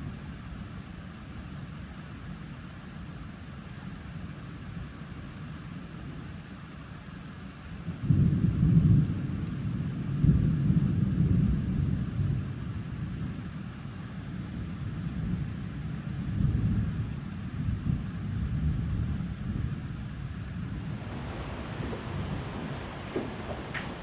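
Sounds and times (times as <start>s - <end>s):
heavy rain: 20.4s - 24.0s
thunder rumbling: 20.6s - 24.0s.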